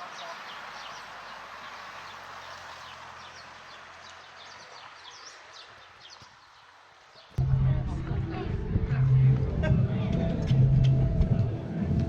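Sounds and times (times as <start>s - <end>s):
small birds chirping: 0.0s - 7.4s.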